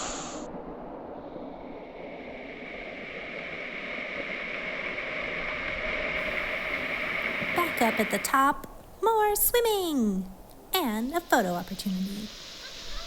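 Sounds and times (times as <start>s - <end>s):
waterfall rushing: 6.2s - 8.6s.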